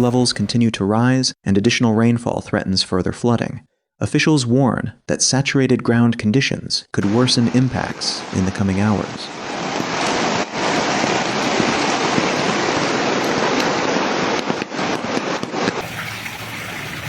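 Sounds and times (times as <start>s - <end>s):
quieter water sound: 0.0s - 0.6s, 7.0s - 17.0s
storm water rushing: 7.0s - 17.0s.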